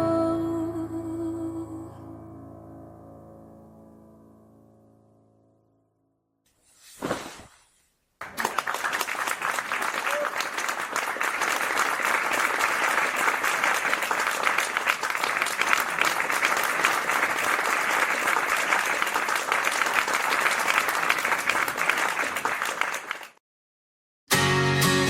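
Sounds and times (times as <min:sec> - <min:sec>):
audience applause: 0:08.2 - 0:23.4.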